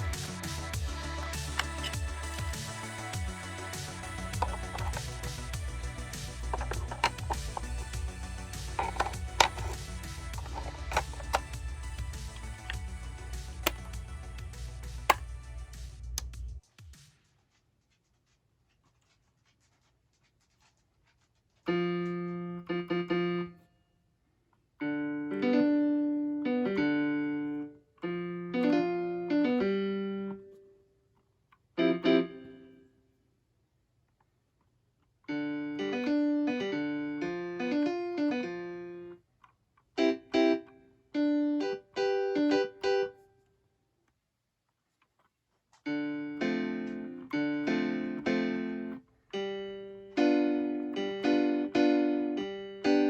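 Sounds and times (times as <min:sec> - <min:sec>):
keyboard piano chords and notes: 0:00.0 - 0:15.2, 0:21.7 - 0:23.6, 0:24.8 - 0:30.5, 0:31.8 - 0:32.8, 0:35.3 - 0:39.2, 0:40.0 - 0:43.2, 0:45.9 - 0:53.0.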